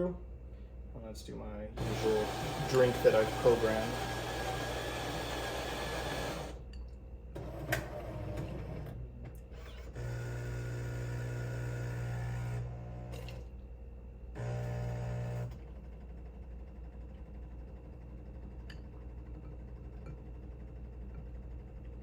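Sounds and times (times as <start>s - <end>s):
coffee machine motor hum: 1.8s - 6.7s, 9.8s - 13.4s, 14.4s - 15.7s
coffee machine whirring: 1.8s - 6.7s, 7.4s - 9.0s.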